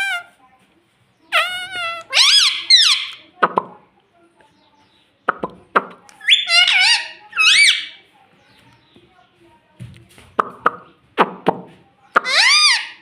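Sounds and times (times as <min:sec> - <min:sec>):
parrot chattering calls: 0:00.0 - 0:00.3, 0:01.3 - 0:03.2, 0:06.2 - 0:08.0, 0:12.2 - 0:13.0.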